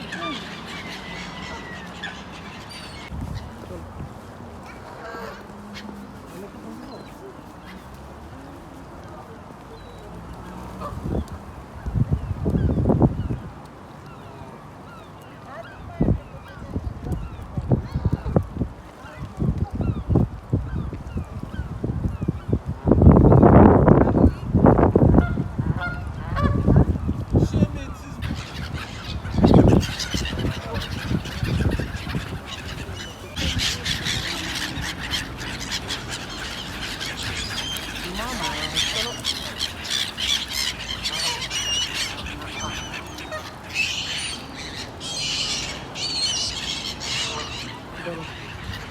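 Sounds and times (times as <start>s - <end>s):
birds calling: 0.0s - 3.6s, 27.4s - 48.9s
geese honking: 28.2s - 48.9s.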